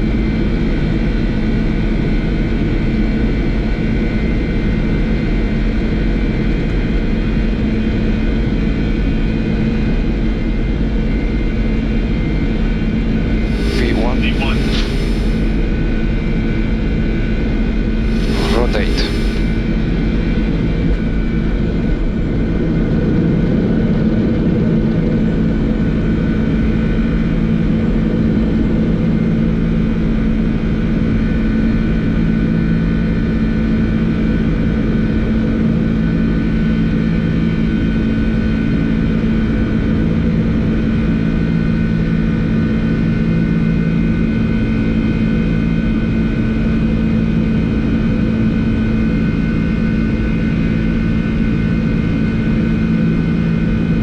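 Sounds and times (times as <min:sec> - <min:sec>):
high whining tones: 0:13.4 - 0:16.0, 0:18.0 - 0:20.1
airplane cockpit air and engine rush: 0:13.4 - 0:16.3, 0:18.0 - 0:20.5.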